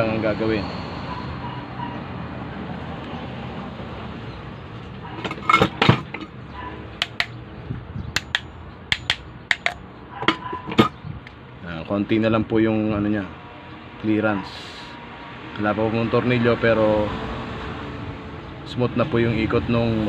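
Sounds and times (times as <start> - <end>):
sharp metallic clicks of fan shaft: 7.0 - 7.4, 8.1 - 11.4.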